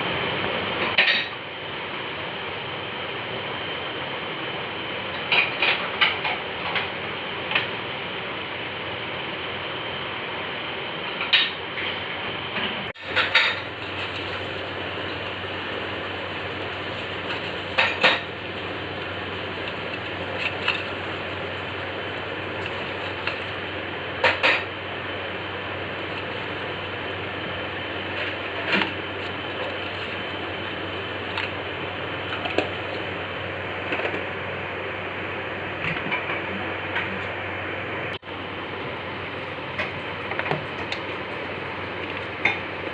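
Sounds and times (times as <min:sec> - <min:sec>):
steady hiss: 0:13.0 - 0:33.4.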